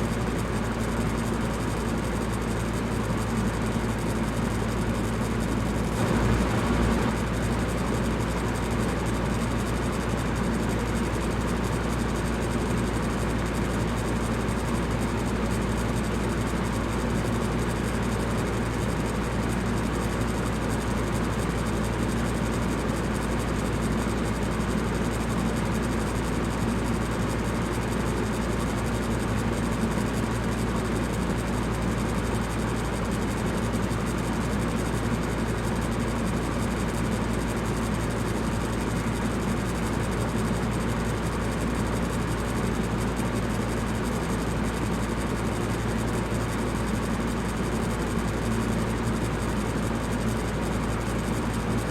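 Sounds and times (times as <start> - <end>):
electric fan whooshing: 5.9 - 8.9
low hum: 5.9 - 8.9.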